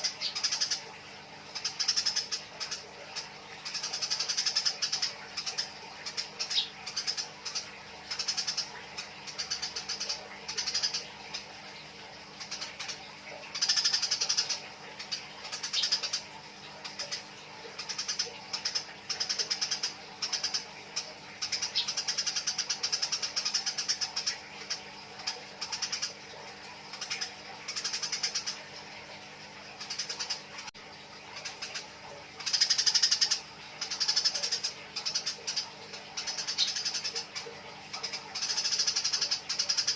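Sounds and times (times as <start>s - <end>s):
sparrows chattering chirps: 1.5s - 11.6s, 12.3s - 28.7s, 31.4s - 39.9s.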